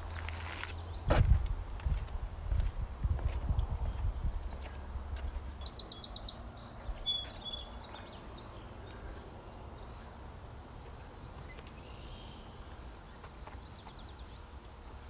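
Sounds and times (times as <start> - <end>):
footsteps on wooden bridge: 0.1 - 5.6
songbird calling: 5.6 - 10.2, 10.8 - 15.0.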